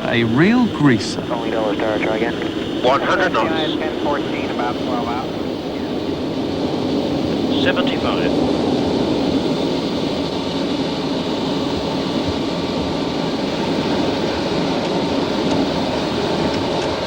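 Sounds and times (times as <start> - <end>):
jet engines in cockpit: 0.0 - 17.0.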